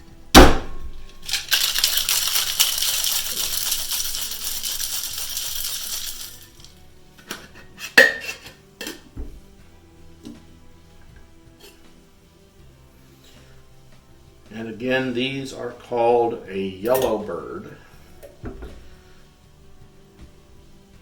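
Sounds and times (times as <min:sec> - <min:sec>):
ice rattling in cocktail shaker: 0:01.2 - 0:06.8.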